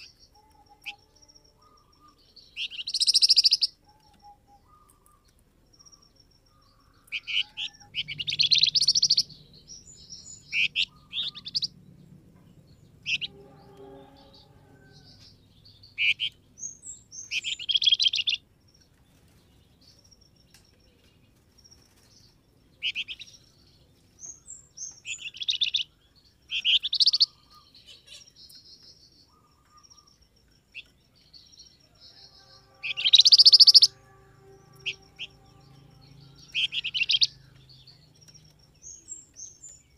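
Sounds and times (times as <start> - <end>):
bird chattering chirps: 0.0 - 5.3, 5.9 - 11.8, 15.8 - 18.4, 26.5 - 28.6, 32.8 - 34.0, 36.2 - 39.8.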